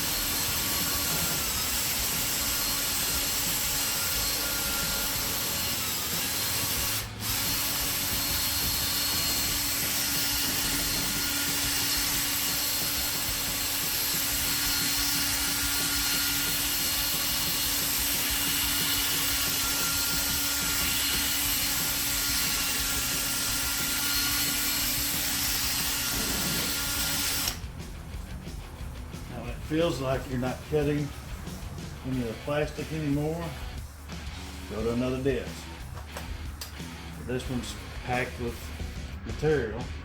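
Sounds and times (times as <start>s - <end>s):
electric drill sanding plastic: 0.0s - 27.6s.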